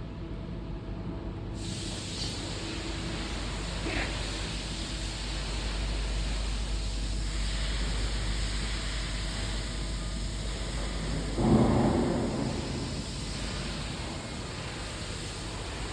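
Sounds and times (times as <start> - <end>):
welding arc crackling and hissing: 1.6 - 15.9.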